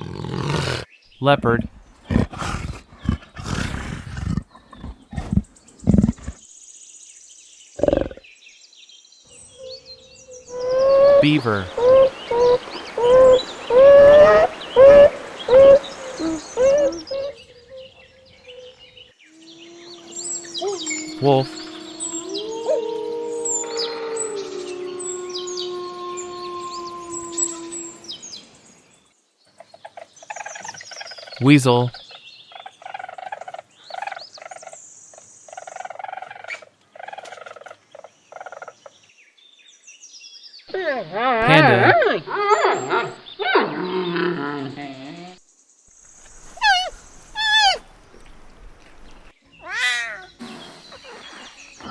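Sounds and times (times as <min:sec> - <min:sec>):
small birds chirping: 0:04.4 - 0:40.7, 0:42.7 - 0:47.8, 0:48.9 - 0:51.9
beaver whining calls: 0:10.5 - 0:17.4, 0:19.6 - 0:28.1, 0:46.5 - 0:47.8, 0:50.4 - 0:51.9.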